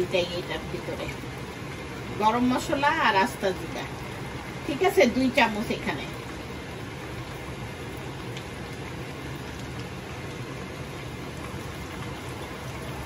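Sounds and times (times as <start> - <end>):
chicken frying in oil: 0.0 - 13.0.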